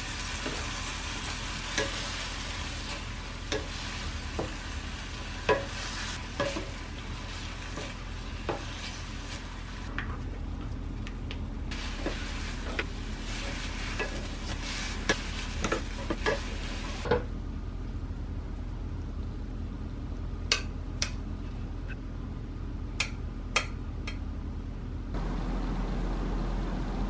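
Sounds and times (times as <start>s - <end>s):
food sizzling in a frying pan: 0.0s - 9.9s, 11.7s - 17.1s
utensils clicking against pan: 12.0s - 16.7s.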